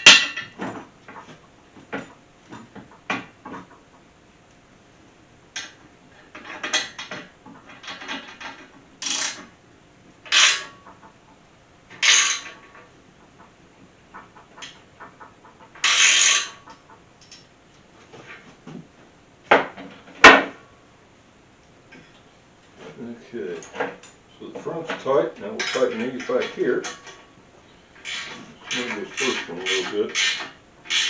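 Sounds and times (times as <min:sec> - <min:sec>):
sharp metal knocks: 0:00.0 - 0:00.8.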